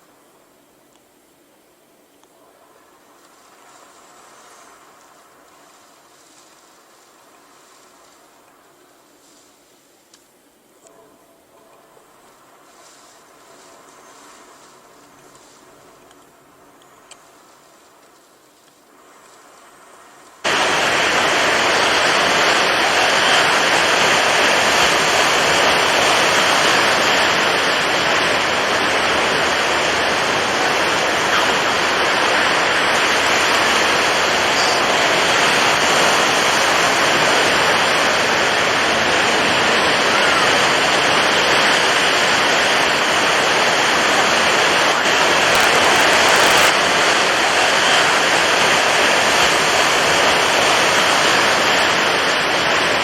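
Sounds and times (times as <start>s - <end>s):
heavy surf breaking: 19.0s - 53.0s.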